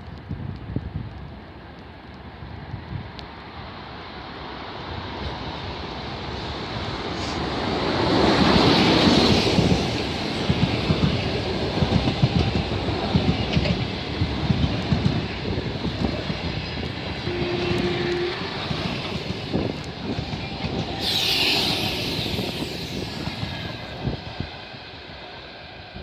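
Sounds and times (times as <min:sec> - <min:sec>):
burst of hiss: 0:20.9 - 0:24.2.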